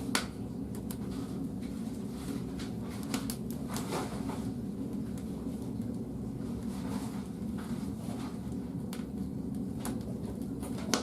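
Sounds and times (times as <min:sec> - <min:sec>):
wood fire burning: 0:00.0 - 0:11.0.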